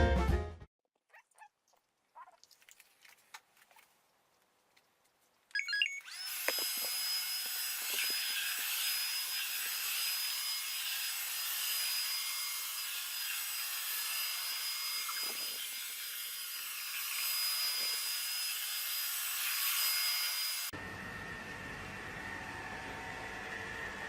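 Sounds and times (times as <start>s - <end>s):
robot vacuum whirring: 5.6s - 20.6s.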